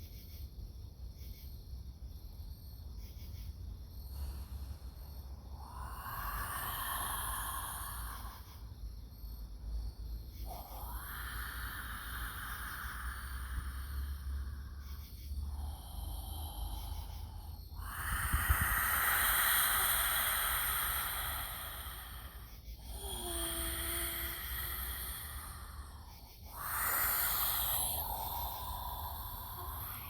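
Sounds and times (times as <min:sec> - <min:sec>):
woman breathing deeply: 0:04.0 - 0:09.2, 0:10.2 - 0:30.0.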